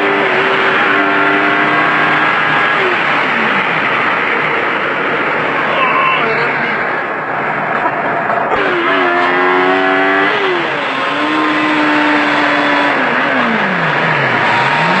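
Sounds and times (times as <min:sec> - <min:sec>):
car engine accelerating: 0:00.0 - 0:15.0
wind and road noise: 0:00.0 - 0:15.0.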